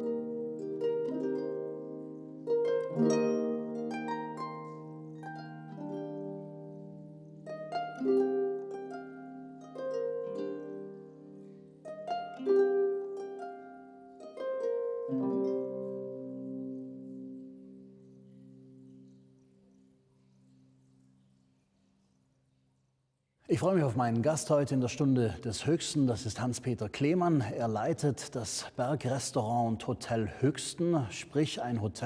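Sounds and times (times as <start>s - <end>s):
plucked string instrument music: 0.0s - 21.4s.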